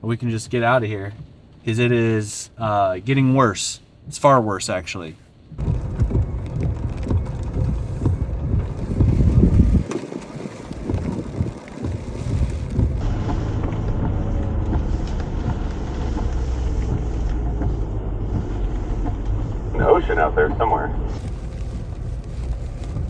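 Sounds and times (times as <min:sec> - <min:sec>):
vehicle engine and tyres rumbling: 0:00.0 - 0:23.0
wind buffeting microphone: 0:05.5 - 0:23.0.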